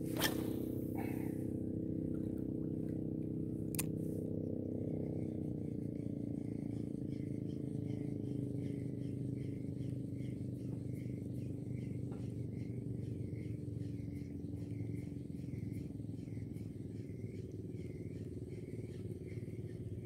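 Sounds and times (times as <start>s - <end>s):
engine running: 0.0s - 20.0s
sharp click: 3.7s - 3.9s.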